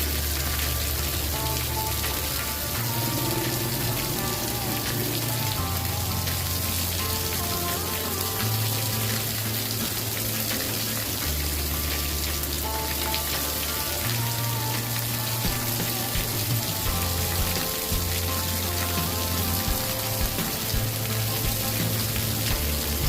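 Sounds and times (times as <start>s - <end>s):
campfire crackling: 0.0s - 23.0s
rain hissing: 0.0s - 23.0s
soft ambient music: 0.0s - 23.0s.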